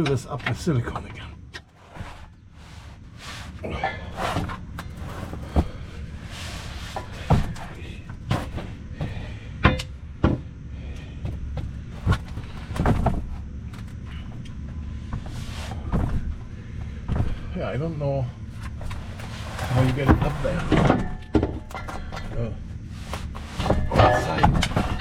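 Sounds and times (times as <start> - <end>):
steady low rumble: 0.0 - 25.0
metal hitch clanking and knocking: 18.6 - 22.8, 23.6 - 25.0.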